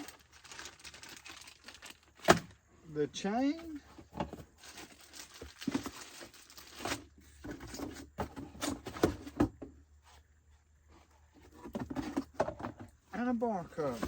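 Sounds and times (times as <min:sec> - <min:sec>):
packaging rustling and crinkling: 0:00.0 - 0:02.6, 0:03.5 - 0:09.3.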